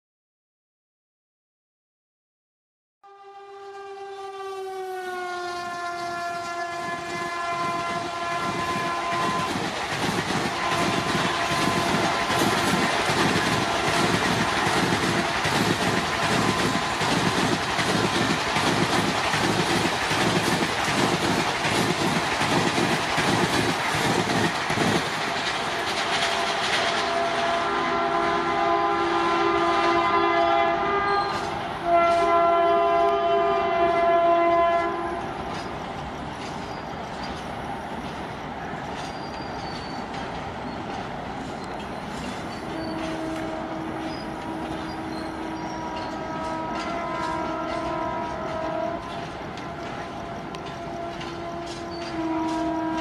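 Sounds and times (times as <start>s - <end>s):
locomotive horn blast: 3.0s - 9.7s, 10.4s - 18.4s, 26.1s - 35.4s, 42.7s - 53.0s
faint train horn: 3.0s - 19.6s, 25.7s - 35.6s, 42.5s - 53.0s
train coaches rushing past: 4.1s - 53.0s.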